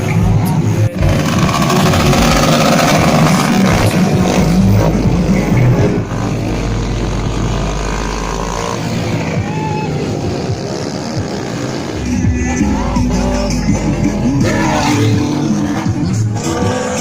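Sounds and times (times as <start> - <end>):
motorcycle engines running: 0.0 - 17.0.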